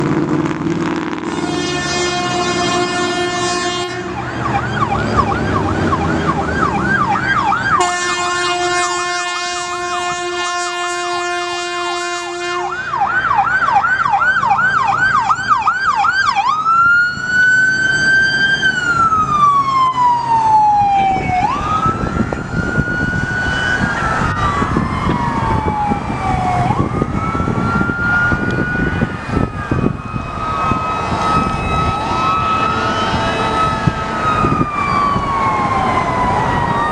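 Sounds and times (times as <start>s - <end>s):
emergency siren wailing: 0.0s - 36.9s
vehicle horn blast: 1.2s - 4.2s, 7.8s - 12.8s, 32.6s - 34.2s
second wailing siren: 1.2s - 36.9s
electronic siren yelp: 1.6s - 36.9s.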